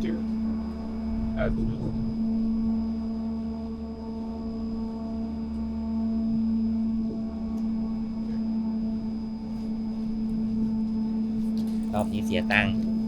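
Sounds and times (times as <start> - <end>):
low rumble: 0.0 - 11.5
ferry machinery hum: 0.0 - 13.0.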